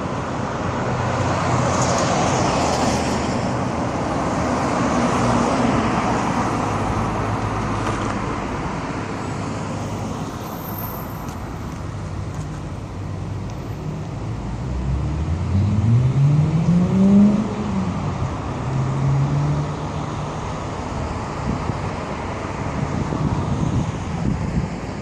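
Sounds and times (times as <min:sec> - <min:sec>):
road traffic: 0:00.0 - 0:25.0.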